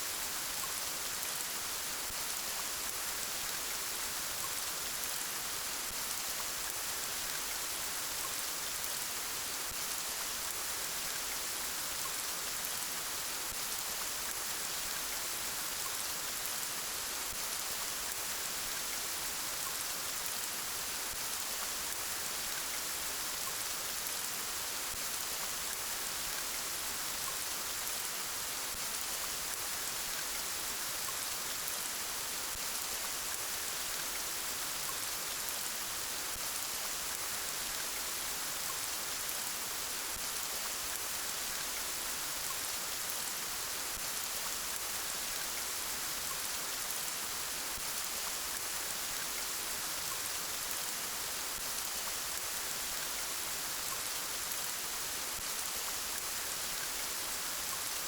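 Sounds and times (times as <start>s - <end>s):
gentle rain falling: 0.0s - 58.0s.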